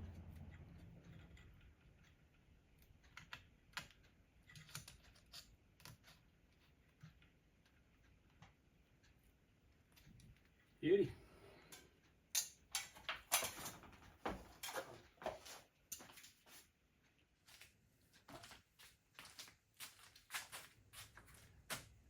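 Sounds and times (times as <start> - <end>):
metal hardware clicking and clattering: 11.7 - 15.0.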